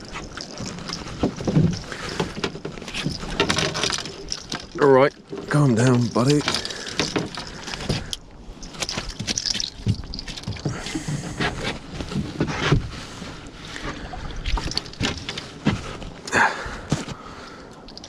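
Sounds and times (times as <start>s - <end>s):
fish thrashing against boat: 0.0s - 13.1s.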